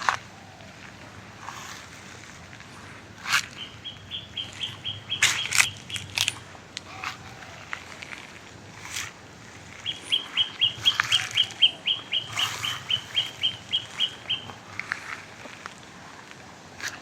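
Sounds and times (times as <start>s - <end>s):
dry leaves crackling: 0.0s - 17.0s
bird calling high short notes: 3.5s - 7.6s, 9.7s - 14.6s.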